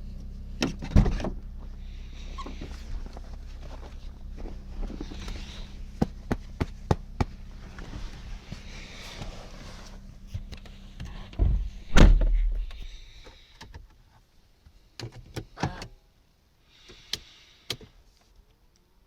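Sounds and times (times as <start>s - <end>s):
steady low hum: 0.0s - 13.5s
car door shutting: 0.6s - 1.4s, 7.2s - 13.0s.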